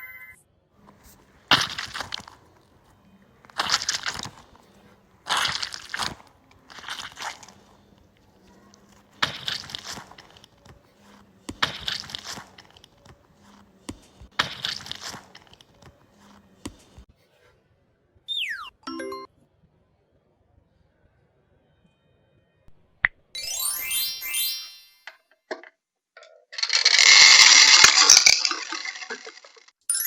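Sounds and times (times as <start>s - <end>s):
crunchy balls crunching: 1.3s - 2.7s, 3.4s - 7.9s, 8.8s - 15.8s, 26.6s - 29.7s.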